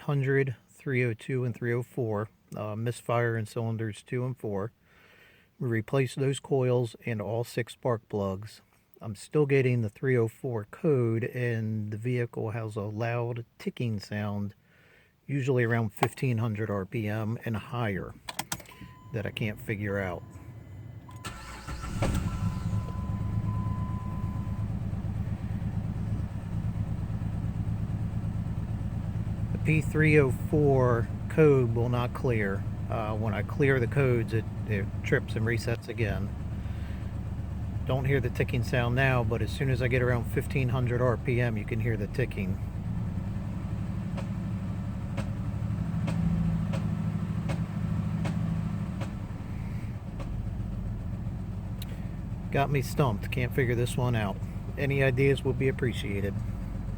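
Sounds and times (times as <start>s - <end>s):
car engine idling: 17.6s - 56.9s.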